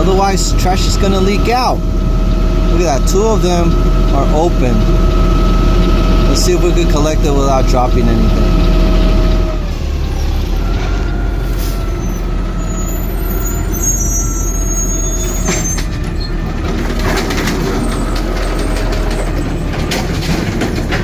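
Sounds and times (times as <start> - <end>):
garbage truck running: 0.0 - 21.0
hydraulic whine: 0.0 - 21.0
clatter: 15.5 - 21.0.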